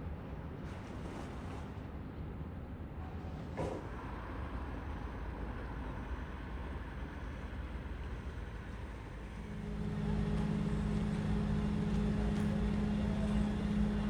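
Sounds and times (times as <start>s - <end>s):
steady low drone: 9.2s - 14.0s
ferry machinery rumbling: 9.4s - 14.0s.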